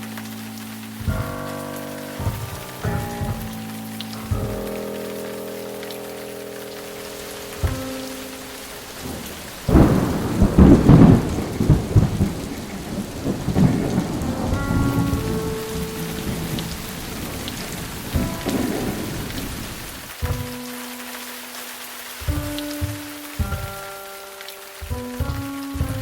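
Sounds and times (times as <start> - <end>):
steady rain: 0.0 - 26.0
thunder: 8.8 - 20.1.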